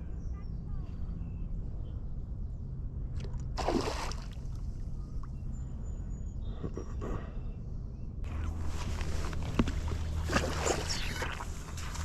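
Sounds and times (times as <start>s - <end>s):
steady low rumble: 0.0s - 12.0s
water sloshing and splashing: 3.2s - 4.6s, 8.3s - 12.0s.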